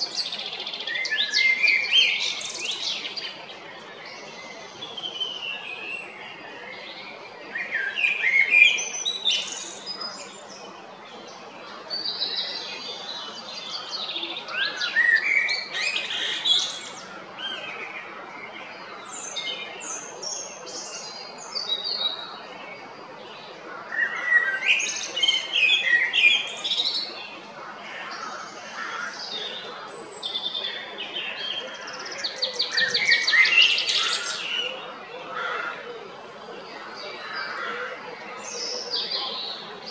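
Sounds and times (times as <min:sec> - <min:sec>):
blackbird singing: 0:00.0 - 0:10.7, 0:11.3 - 0:18.0, 0:23.8 - 0:35.8.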